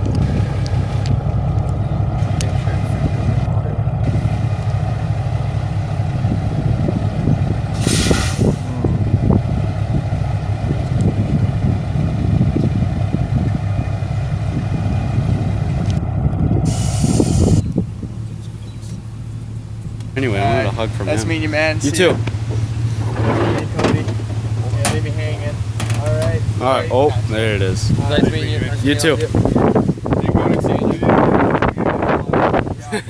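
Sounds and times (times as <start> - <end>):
diesel truck engine running: 0.0 - 33.0
air brakes hissing: 7.7 - 8.7, 16.7 - 17.8.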